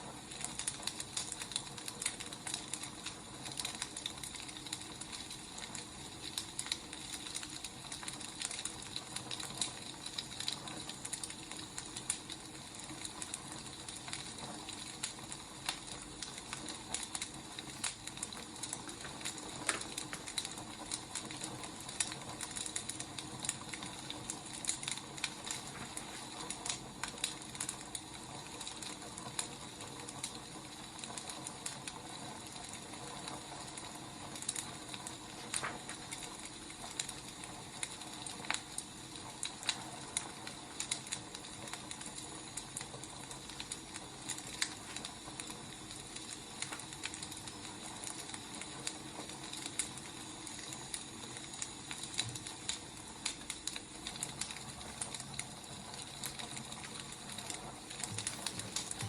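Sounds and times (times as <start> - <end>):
fire pops and snaps: 0.0 - 59.0
wood fire crackling: 0.0 - 59.0.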